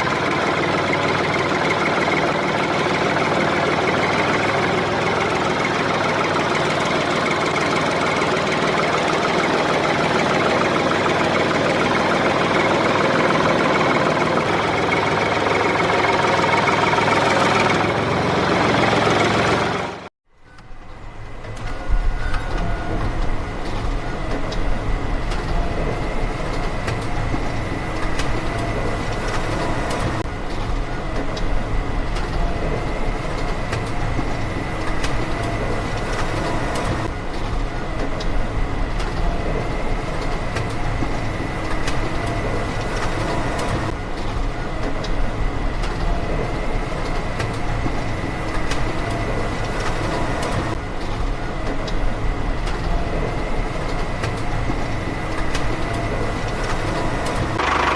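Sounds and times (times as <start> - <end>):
small motor running: 56.0 - 57.9.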